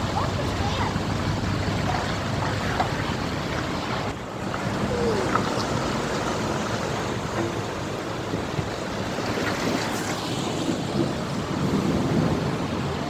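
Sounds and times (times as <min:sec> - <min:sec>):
truck and tractor engines passing: 0:00.0 - 0:13.0
wind buffeting microphone: 0:00.0 - 0:13.0.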